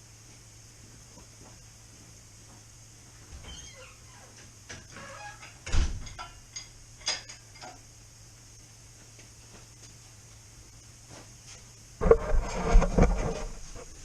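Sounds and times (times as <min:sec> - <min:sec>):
squeaks: 0:03.4 - 0:05.6.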